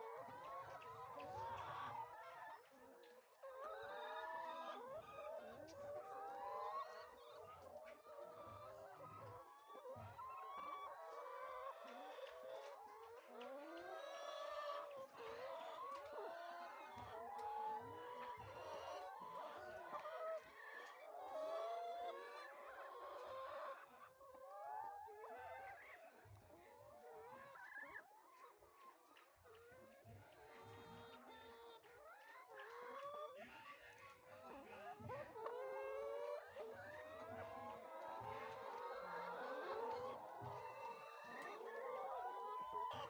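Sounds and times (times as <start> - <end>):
hens clucking: 0.2 - 43.0.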